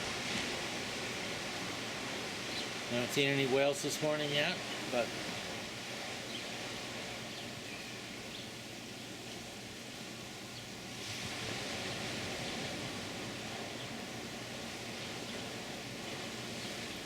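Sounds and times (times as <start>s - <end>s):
ocean surf: 0.0s - 8.8s, 9.4s - 17.0s
faint bird chirps: 7.3s - 8.5s.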